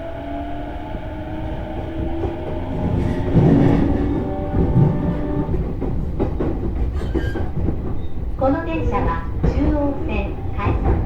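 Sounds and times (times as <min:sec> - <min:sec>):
traction motor whine: 0:00.0 - 0:05.7
train cabin rumble: 0:00.0 - 0:11.0
wheels clicking over rail joints: 0:00.0 - 0:11.0.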